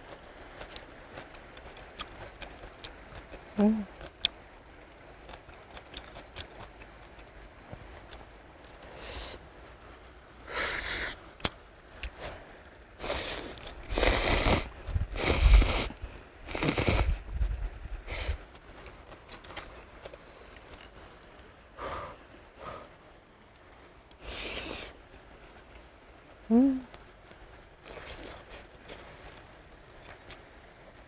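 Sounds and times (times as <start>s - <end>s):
noodles being slurped: 13.0s - 17.3s, 24.1s - 25.0s, 27.8s - 29.4s.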